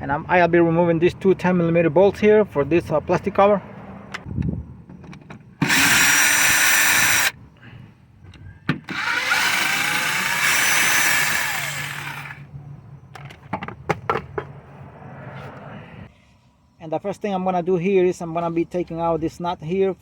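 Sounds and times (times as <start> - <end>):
cordless power tool spinning: 5.6 - 7.4, 8.9 - 12.4.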